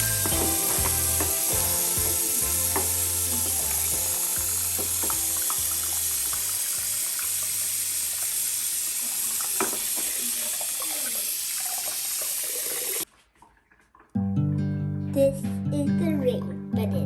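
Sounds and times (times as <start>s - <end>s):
tap running into sink: 0.0s - 13.0s.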